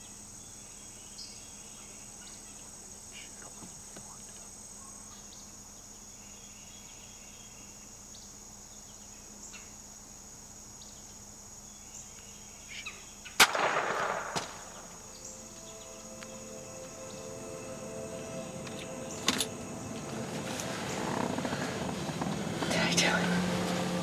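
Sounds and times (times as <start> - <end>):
insects buzzing: 0.0 - 24.0
gunshot with echo: 13.4 - 15.3.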